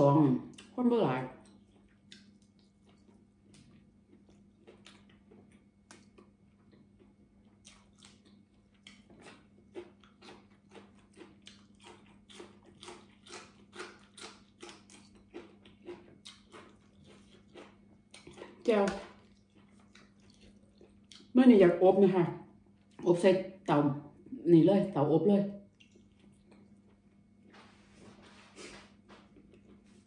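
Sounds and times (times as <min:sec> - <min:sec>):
person chewing food: 0:01.4 - 0:21.3, 0:25.7 - 0:30.0.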